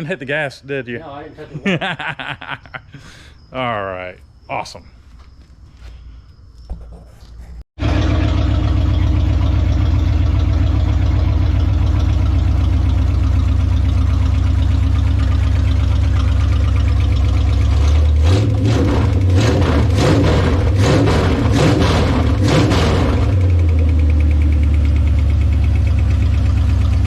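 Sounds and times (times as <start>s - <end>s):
engine idling: 7.8s - 27.0s.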